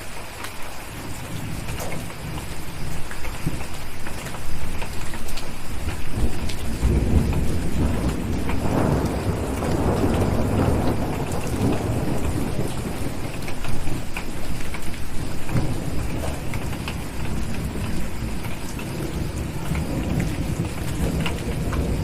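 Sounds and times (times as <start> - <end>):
heavy rain: 0.0 - 22.0
rolling thunder: 5.7 - 22.0.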